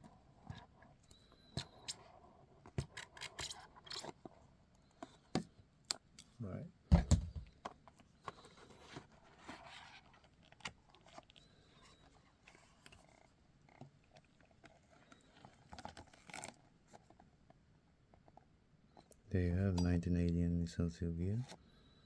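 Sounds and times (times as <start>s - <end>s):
small clicks of packaging: 10.1s - 17.3s.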